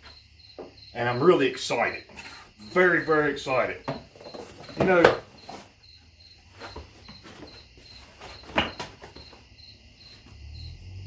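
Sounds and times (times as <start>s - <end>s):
cricket chirping: 0.0s - 11.0s
cardboard package handling rustles: 3.9s - 9.5s.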